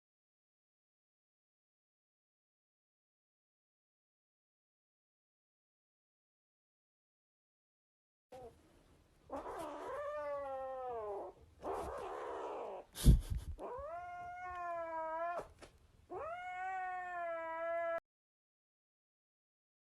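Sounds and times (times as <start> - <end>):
cat yowling: 9.3 - 12.9, 13.6 - 18.0.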